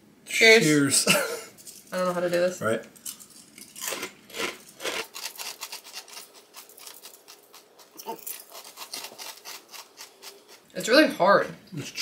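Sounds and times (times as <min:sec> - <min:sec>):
cereal crunching while chewed: 0:03.1 - 0:10.8.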